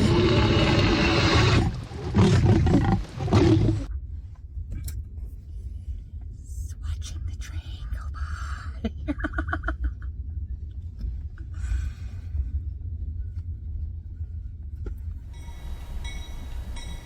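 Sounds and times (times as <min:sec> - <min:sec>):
train low rumble: 0:00.0 - 0:17.0
high steady tone: 0:15.3 - 0:17.0.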